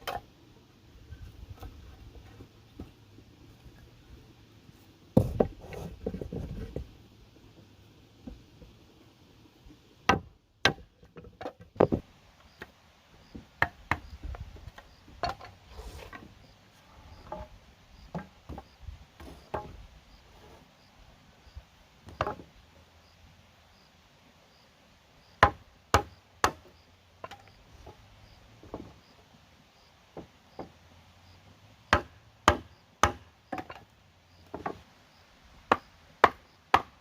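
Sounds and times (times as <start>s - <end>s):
heavy thump: 5.2s - 5.6s
wood and bamboo knocking: 5.2s - 6.9s, 10.1s - 12.7s, 13.3s - 15.6s, 17.2s - 17.5s, 18.1s - 19.8s, 22.1s - 22.5s, 25.4s - 28.0s, 31.9s - 34.8s, 35.7s - 37.0s.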